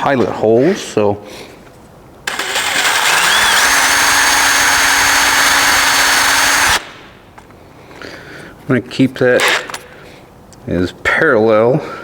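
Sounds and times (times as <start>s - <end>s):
electric drill whining: 2.3s - 6.9s.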